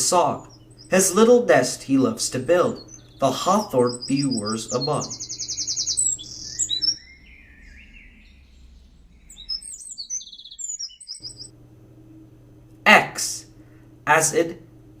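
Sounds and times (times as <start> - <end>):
wren singing trills: 0.0 - 11.5.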